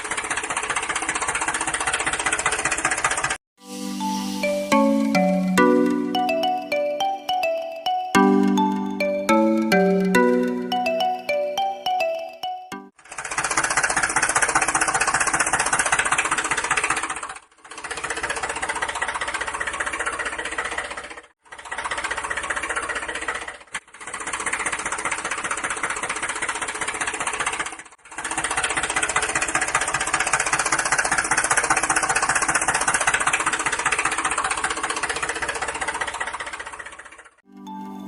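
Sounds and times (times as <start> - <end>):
small motor rattling: 0.0 - 3.4, 13.0 - 37.4.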